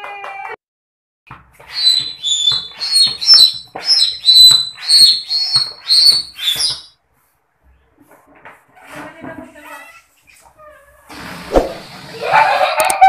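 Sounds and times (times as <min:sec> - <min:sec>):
floor pump strokes squeaking: 0:01.5 - 0:06.9.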